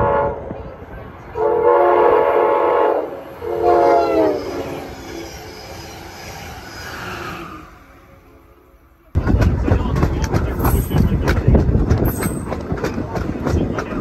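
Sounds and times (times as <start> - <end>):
steam locomotive whistle blowing: 1.4 - 5.7.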